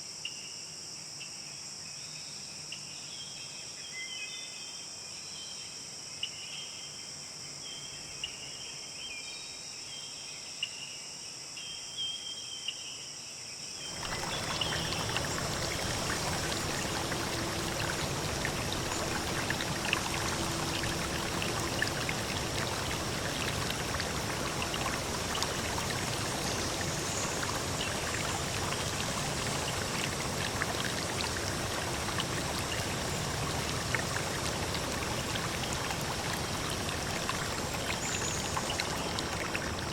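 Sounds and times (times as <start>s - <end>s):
insect chorus: 0.0s - 39.9s
flowing water: 13.8s - 39.9s
water drips and splashes: 13.8s - 39.9s.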